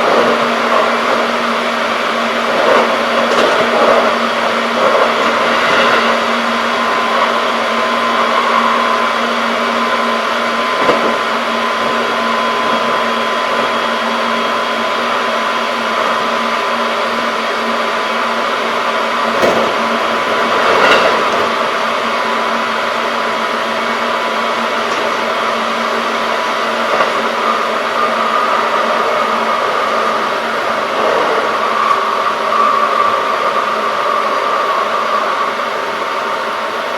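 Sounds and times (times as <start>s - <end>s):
train motor whine: 0.0s - 36.9s
train rolling noise: 0.0s - 36.9s
track knocks: 19.2s - 22.1s, 24.7s - 34.4s.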